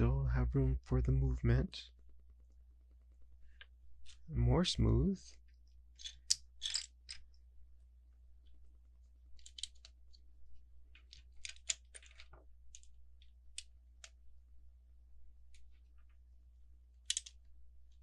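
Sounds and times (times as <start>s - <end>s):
plastic bricks clicking: 5.9s - 7.3s, 9.4s - 10.2s, 10.9s - 14.2s, 17.0s - 17.5s.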